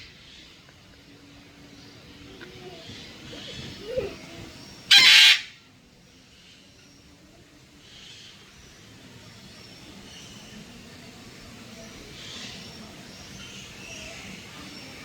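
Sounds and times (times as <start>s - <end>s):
background chatter: 0.0s - 15.0s
faint calls: 2.2s - 5.6s
bird squawk: 4.9s - 5.6s.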